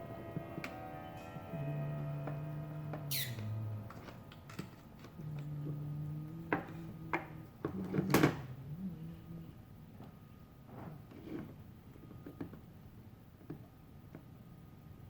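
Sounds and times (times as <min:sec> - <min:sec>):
low held tone: 0:00.0 - 0:07.6.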